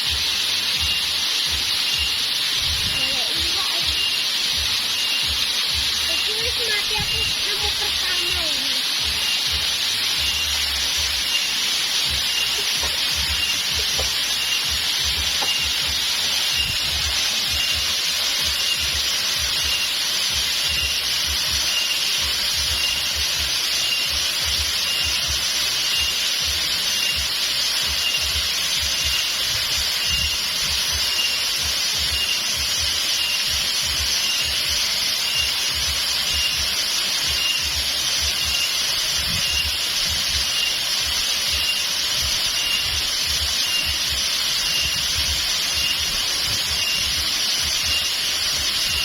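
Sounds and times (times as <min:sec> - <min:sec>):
waterfall water rushing: 0:00.0 - 0:49.0
faint high chirp: 0:10.2 - 0:15.9, 0:29.0 - 0:47.2.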